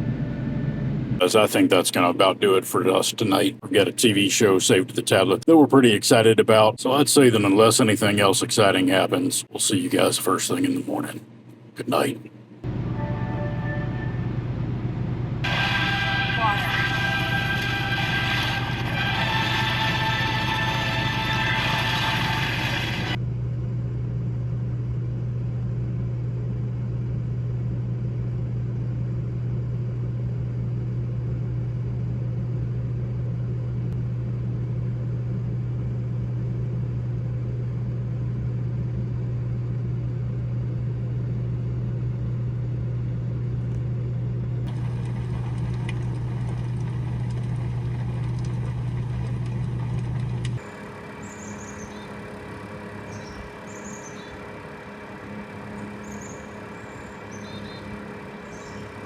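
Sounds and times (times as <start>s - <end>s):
engine humming: 0.0s - 11.2s, 11.8s - 59.0s
faint chirps: 51.2s - 52.2s, 55.7s - 59.0s.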